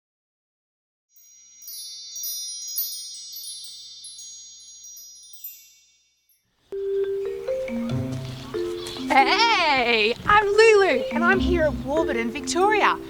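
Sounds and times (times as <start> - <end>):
shimmering chimes: 1.1 - 9.7.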